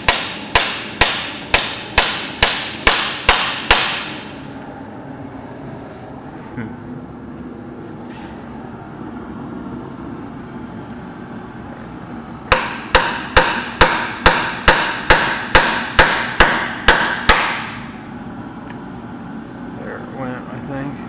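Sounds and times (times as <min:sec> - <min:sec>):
hammer striking metal: 0:00.0 - 0:04.3, 0:12.5 - 0:18.0.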